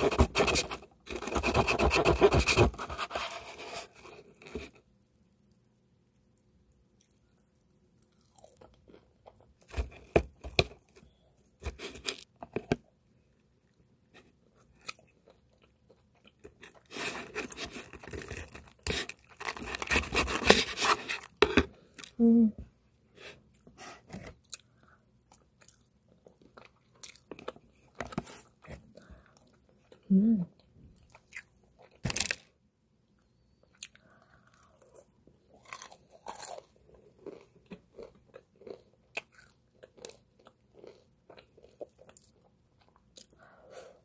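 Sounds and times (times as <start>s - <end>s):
crunchy chewing of fried chicken: 6.9s - 12.4s, 13.6s - 22.2s, 23.4s - 30.1s, 33.6s - 44.0s.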